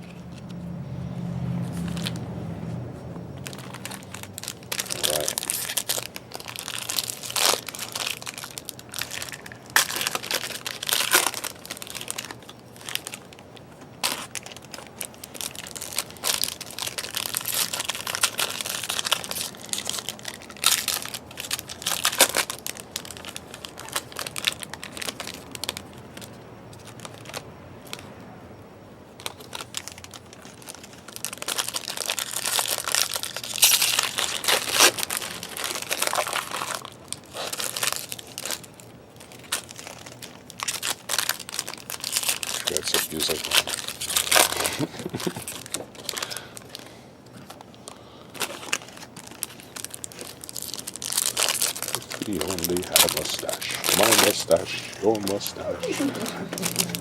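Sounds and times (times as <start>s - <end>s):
wrappers tearing and crinkling: 1.2s - 2.4s, 3.3s - 28.1s, 29.2s - 57.0s
cards handled: 52.2s - 57.0s.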